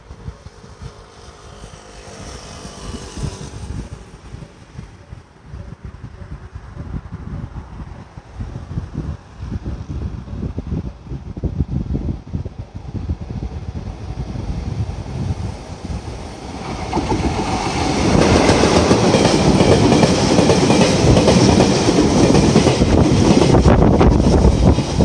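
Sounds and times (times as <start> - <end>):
train wheels on rails rumbling: 8.4 - 25.0.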